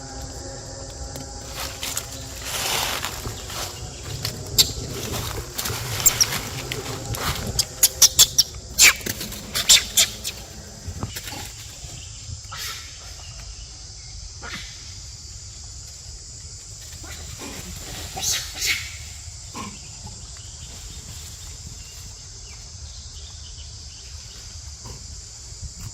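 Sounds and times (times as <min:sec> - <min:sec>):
monkeys squeaking: 0:04.6 - 0:10.6.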